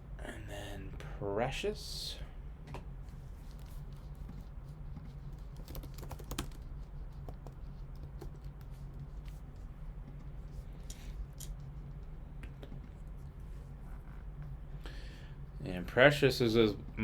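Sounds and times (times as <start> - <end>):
steady low hum: 0.0 - 17.0
keyboard and mouse clicks: 5.0 - 8.8.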